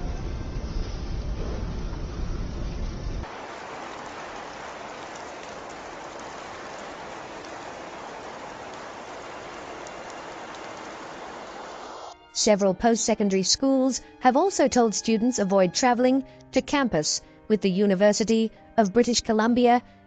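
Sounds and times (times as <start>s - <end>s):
rain hissing on surfaces: 2.3s - 12.2s.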